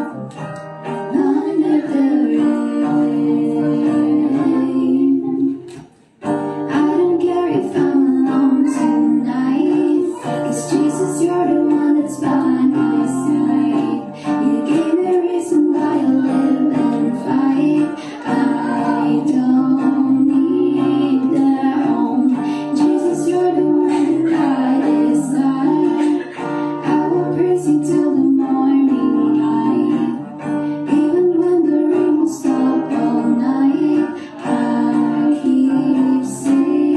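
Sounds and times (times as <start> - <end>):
acoustic guitar: 0.0 - 36.9
person singing slow song: 0.0 - 36.9.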